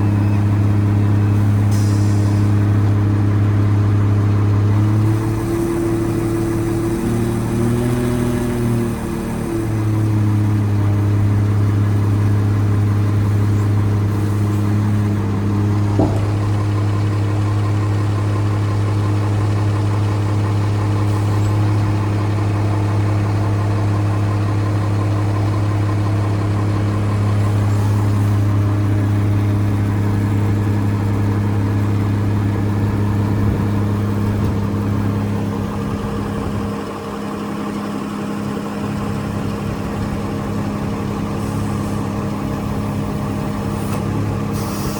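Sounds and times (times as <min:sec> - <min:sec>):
truck diesel engine idling: 0:00.0 - 0:44.9.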